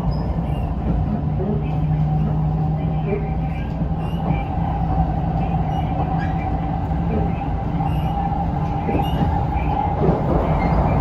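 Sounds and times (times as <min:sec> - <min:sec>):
train low rumble: 0:00.0 - 0:11.0
train whine: 0:00.0 - 0:11.0.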